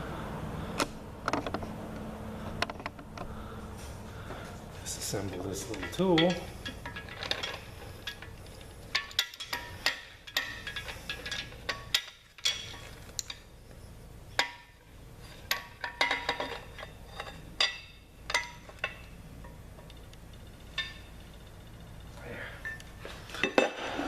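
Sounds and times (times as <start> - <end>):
metal tool pieces clinking: 5.1 - 13.4.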